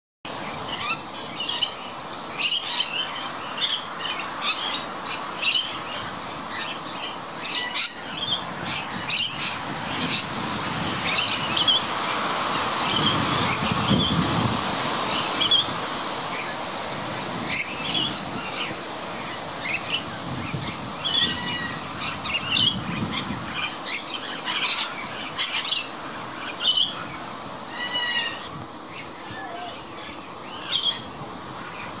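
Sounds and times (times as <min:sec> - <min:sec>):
birds squawking and chirping: 0:17.2 - 0:32.0.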